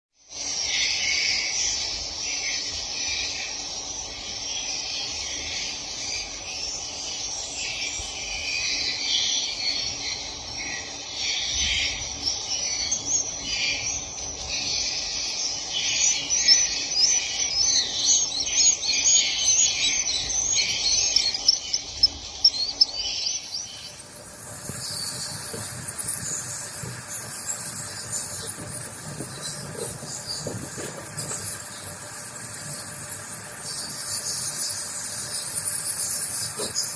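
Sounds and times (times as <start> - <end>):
swiftlets chirping: 16.1 - 36.9.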